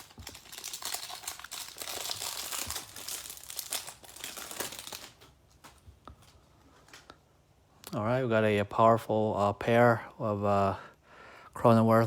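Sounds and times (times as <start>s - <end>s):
wrapper being torn and crinkled: 0.0s - 5.7s.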